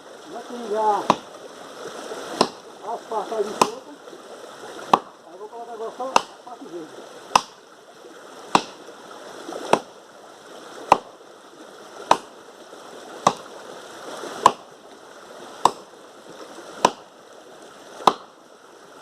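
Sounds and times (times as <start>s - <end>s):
axe chopping wood: 1.0s - 1.3s, 2.3s - 2.6s, 3.6s - 3.8s, 4.9s - 5.1s, 6.1s - 6.5s, 7.3s - 7.6s, 8.5s - 8.8s, 9.7s - 9.9s, 10.8s - 11.2s, 12.1s - 12.3s, 13.2s - 13.5s, 14.4s - 14.7s, 15.6s - 15.9s, 16.8s - 17.1s, 18.0s - 18.4s.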